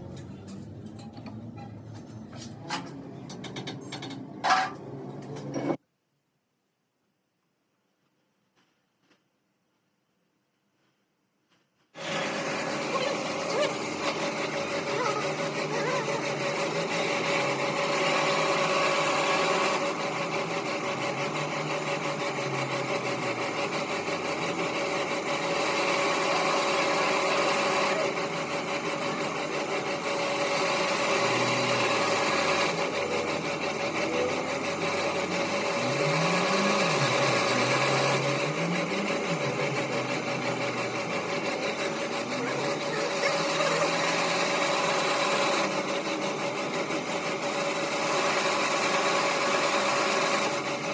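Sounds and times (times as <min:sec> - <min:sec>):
motor whining steadily: 0:12.0 - 0:50.9.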